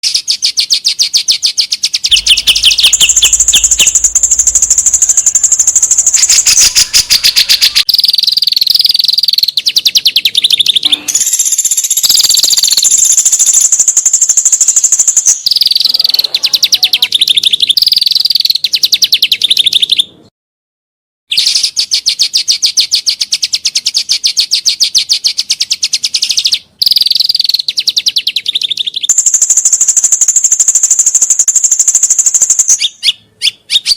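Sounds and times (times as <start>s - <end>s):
songbird chattering trills: 0.0s - 20.0s, 23.2s - 33.9s
songbird high whistled phrases: 0.0s - 20.0s.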